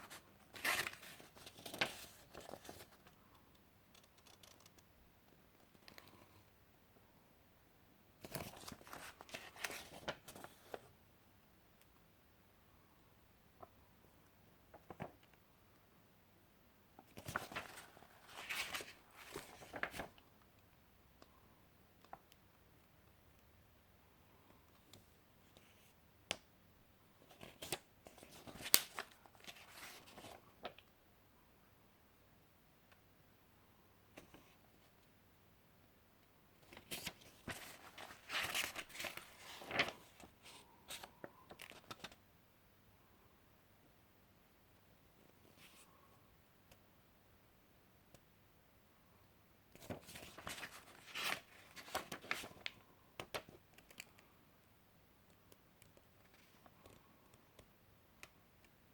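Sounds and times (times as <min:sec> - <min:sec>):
paper pages rustling: 0:00.0 - 0:03.2, 0:03.9 - 0:04.8, 0:08.2 - 0:10.9, 0:17.1 - 0:20.2, 0:27.3 - 0:30.8, 0:36.6 - 0:42.2, 0:49.8 - 0:54.2
rustling handling noise: 0:17.1 - 0:20.2, 0:36.6 - 0:42.2, 0:49.8 - 0:52.8.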